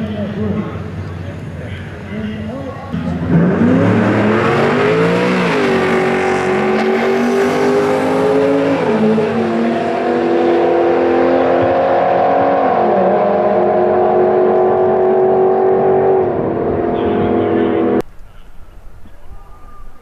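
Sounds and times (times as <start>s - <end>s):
car engine at full throttle: 2.9s - 18.0s.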